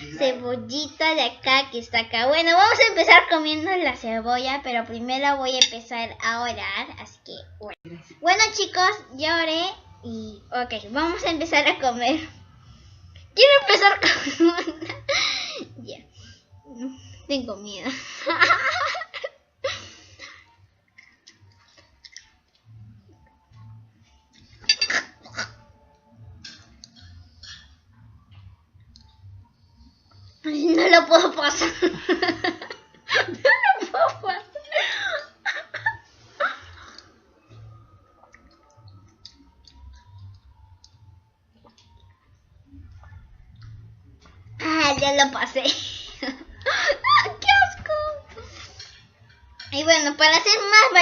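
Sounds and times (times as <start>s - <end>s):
girl chewing: 20.8s - 30.3s, 36.8s - 44.4s
cutlery clinking on plate: 24.6s - 25.2s
person chewing and swallowing: 36.9s - 44.0s.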